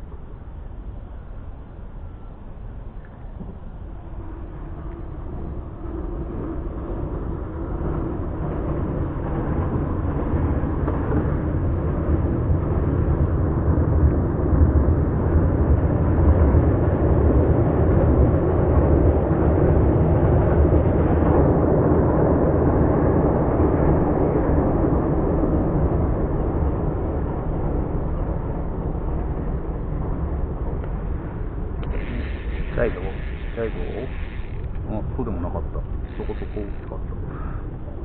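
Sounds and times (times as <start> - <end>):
boat engine rumbling: 16.7 - 38.0.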